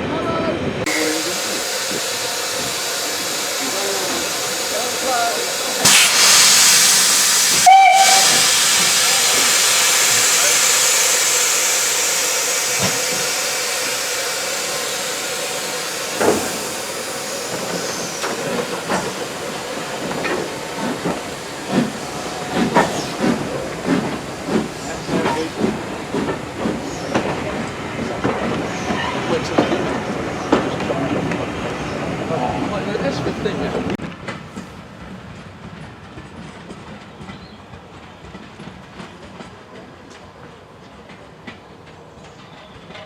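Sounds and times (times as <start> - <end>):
loud hiss of steam: 0.8 - 34.0
steam locomotive whistle: 0.9 - 19.2
locomotive exhaust beats: 0.9 - 32.0.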